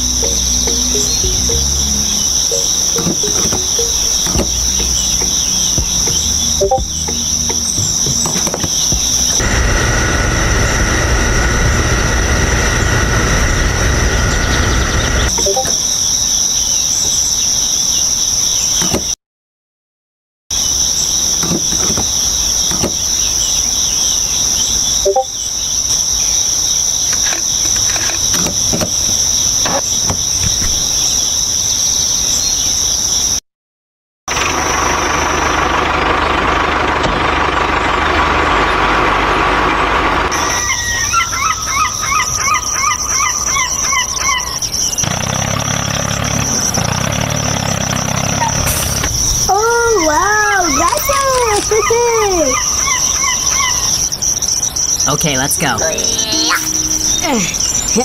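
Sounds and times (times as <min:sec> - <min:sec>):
short repeated chirps: 0:00.0 - 0:09.0
high-pitched insect chirring: 0:00.0 - 0:09.4, 0:55.8 - 0:58.0.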